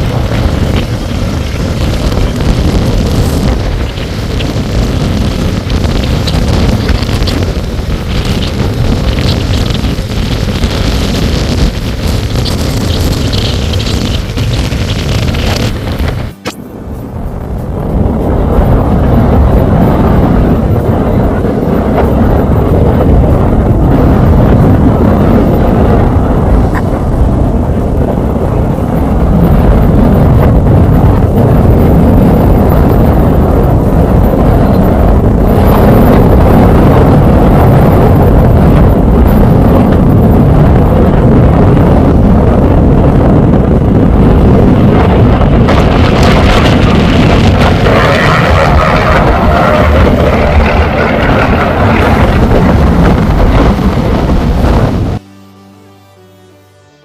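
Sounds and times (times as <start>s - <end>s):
wind buffeting microphone: 0.0s - 55.2s
propeller airplane engine rumble: 0.0s - 55.3s.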